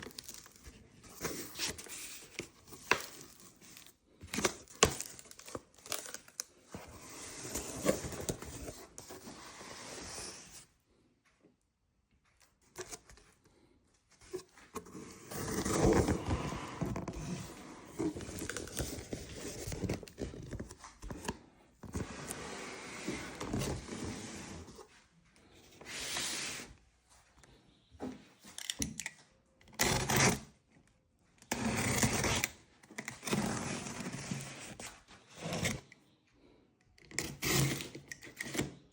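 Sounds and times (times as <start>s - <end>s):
objects scraping and rustling: 0.0s - 10.7s, 12.6s - 26.8s.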